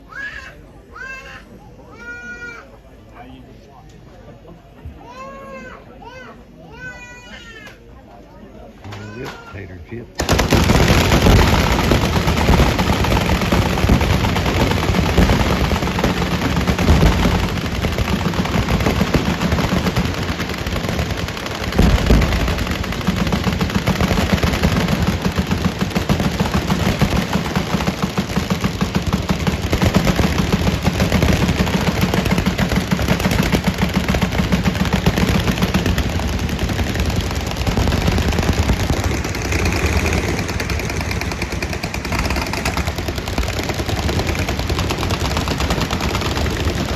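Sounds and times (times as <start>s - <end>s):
automatic gunfire: 10.2s - 46.9s.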